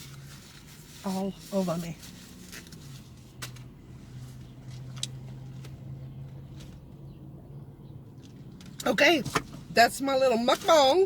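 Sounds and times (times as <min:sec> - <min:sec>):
rustles: 0:00.0 - 0:05.8.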